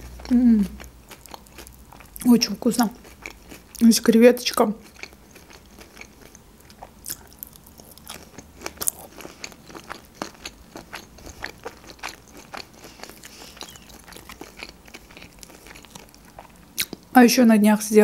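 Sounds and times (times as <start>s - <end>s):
chewing clicks and smacks: 4.8s - 17.1s.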